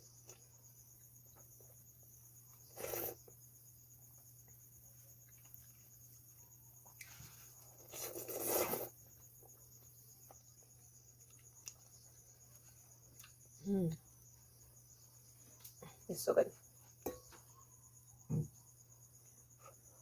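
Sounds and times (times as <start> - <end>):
crickets chirping: 0.0 - 20.0
noisy eating of ramen: 0.1 - 14.4.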